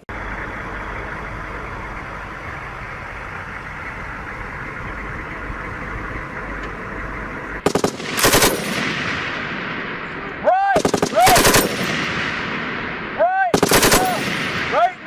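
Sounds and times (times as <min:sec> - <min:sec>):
low rumble: 0:00.0 - 0:15.0
machine-gun fire: 0:07.6 - 0:10.0, 0:10.8 - 0:15.0.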